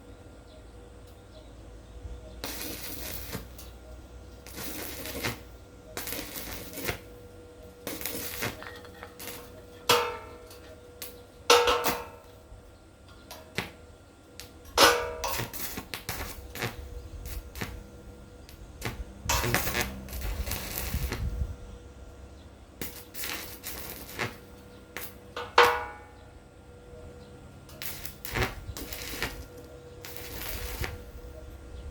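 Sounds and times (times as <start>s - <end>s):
metal scraping: 7.8s - 10.8s, 19.3s - 21.2s, 27.7s - 31.2s.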